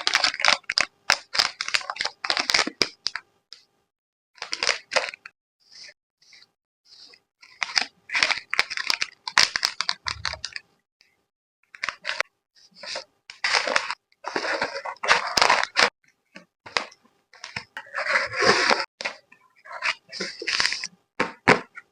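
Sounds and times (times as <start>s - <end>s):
plastic film crinkling: 0.0s - 3.2s, 7.6s - 10.6s.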